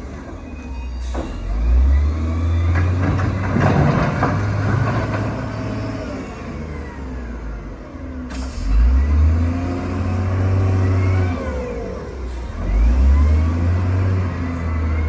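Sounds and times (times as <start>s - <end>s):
heavy diesel engine revving: 8.3s - 15.0s.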